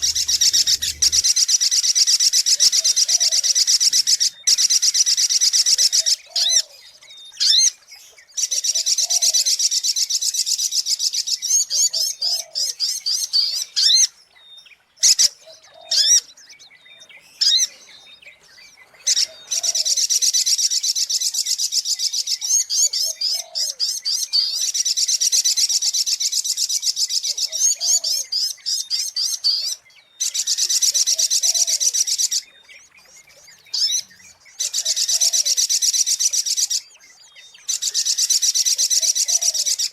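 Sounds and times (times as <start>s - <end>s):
bird rapid high chirps: 0.0s - 1.6s.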